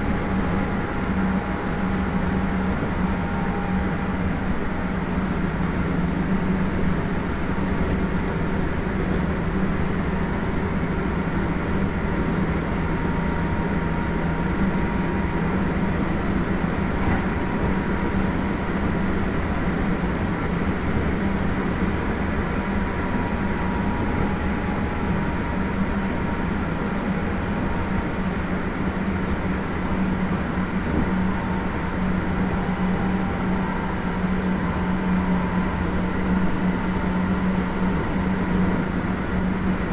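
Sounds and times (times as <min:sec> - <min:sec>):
train wheels rumbling on rails: 0:00.0 - 0:39.9
traction motor hum and tones: 0:29.3 - 0:39.9.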